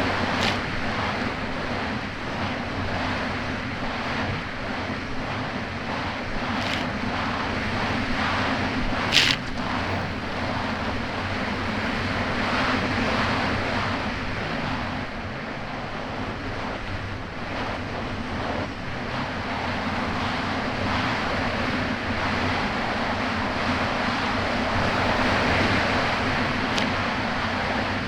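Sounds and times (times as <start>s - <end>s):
jet ski engine running: 0.0s - 28.0s
wind buffeting microphone: 0.0s - 28.0s.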